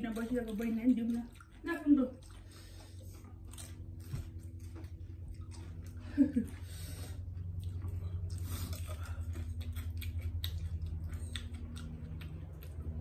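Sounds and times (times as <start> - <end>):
steady low hum: 0.0 - 13.0
crunchy chewing: 0.1 - 13.0.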